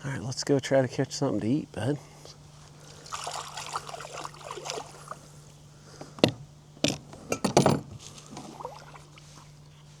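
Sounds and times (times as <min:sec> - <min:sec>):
paddle splashing water: 0:02.8 - 0:05.3, 0:08.2 - 0:09.5.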